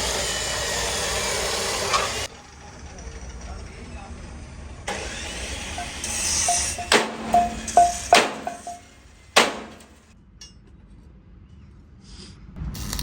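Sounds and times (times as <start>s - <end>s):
hammer striking metal: 5.7s - 9.9s.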